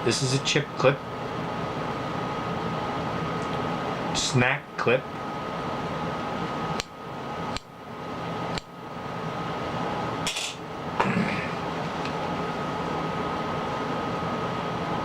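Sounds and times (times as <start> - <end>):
fan-like room noise: 0.0 - 15.0.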